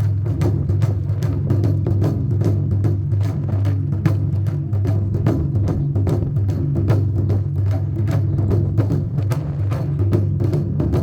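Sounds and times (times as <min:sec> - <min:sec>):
continuous low drum tone: 0:00.0 - 0:11.0.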